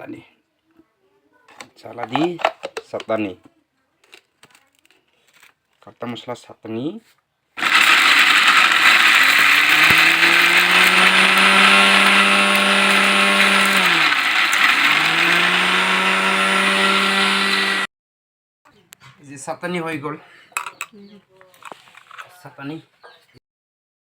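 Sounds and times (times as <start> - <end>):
electric mixer grinder running: 7.6 - 17.9.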